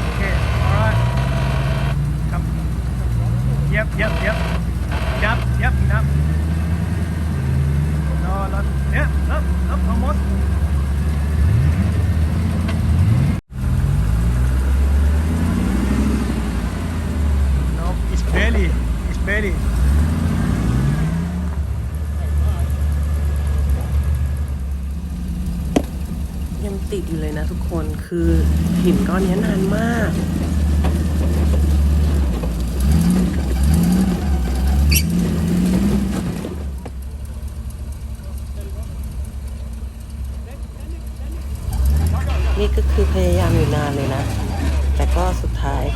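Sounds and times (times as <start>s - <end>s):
truck engine revving: 0.0s - 45.9s
high squeak: 33.0s - 36.4s.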